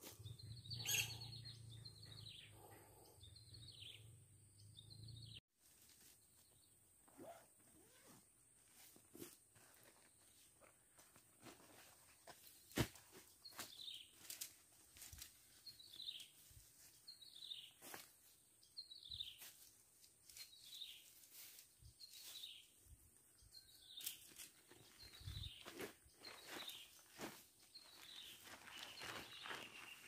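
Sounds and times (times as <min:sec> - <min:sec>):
camping gear clicks and rustles: 0:07.1 - 0:16.6, 0:23.8 - 0:30.0.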